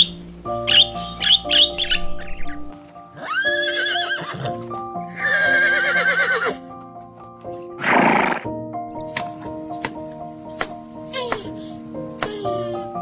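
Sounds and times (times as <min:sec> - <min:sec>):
soft background music: 0:00.0 - 0:13.0
horse whinnying: 0:03.2 - 0:04.6, 0:05.2 - 0:06.6.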